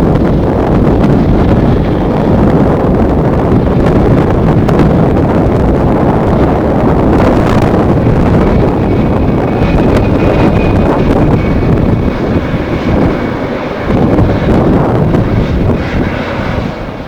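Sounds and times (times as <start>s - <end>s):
jet engines rumbling: 0.0s - 17.0s
wind buffeting microphone: 0.0s - 17.0s.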